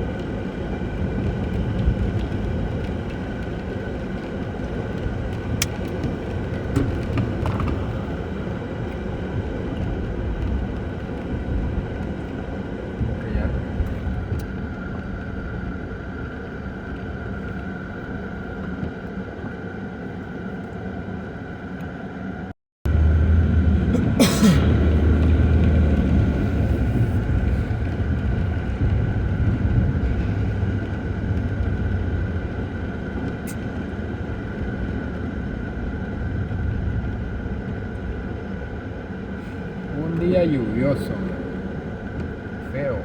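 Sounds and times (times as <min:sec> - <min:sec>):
vehicle road noise rumble: 0:00.0 - 0:43.0.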